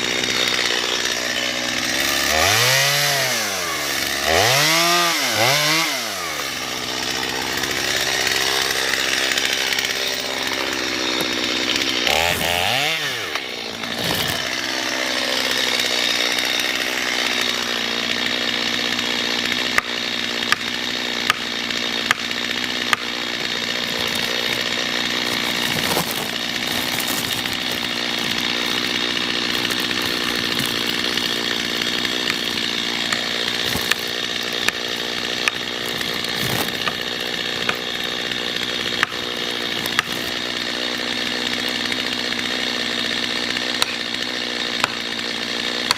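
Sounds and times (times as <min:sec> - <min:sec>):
chainsaw cutting tree: 0:00.0 - 0:45.9.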